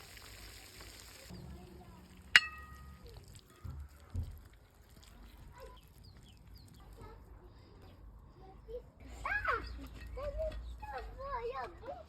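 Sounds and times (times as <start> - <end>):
sharp metallic clink: 2.4 - 3.0.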